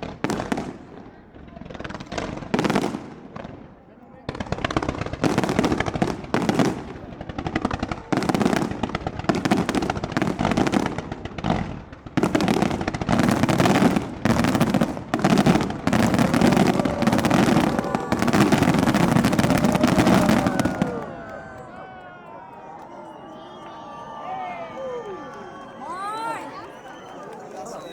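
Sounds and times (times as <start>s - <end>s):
fireworks crackling bangs: 0.0s - 21.8s.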